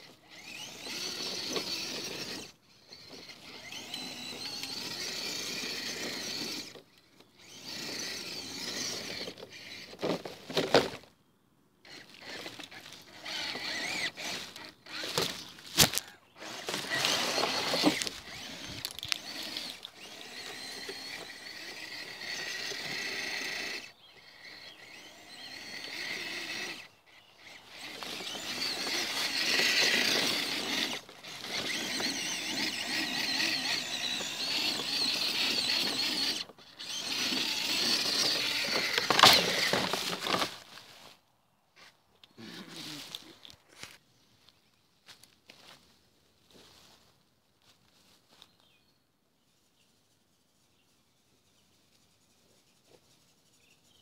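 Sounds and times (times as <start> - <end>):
toy truck motors whining: 0.0 - 11.1, 11.8 - 41.2.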